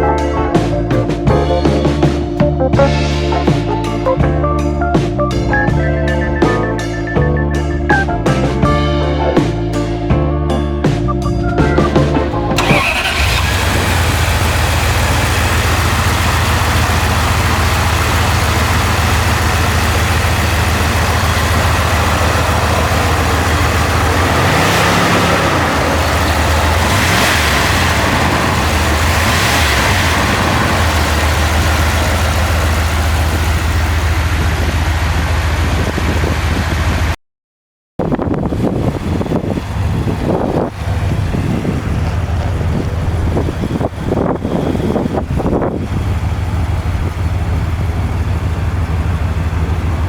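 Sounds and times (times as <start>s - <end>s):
engine idling with throttle blips: 11.8s - 37.2s, 38.0s - 50.0s.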